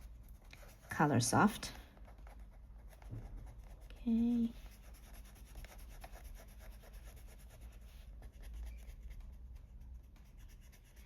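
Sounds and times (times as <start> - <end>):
eraser scrubbing on paper: 4.4 - 9.3.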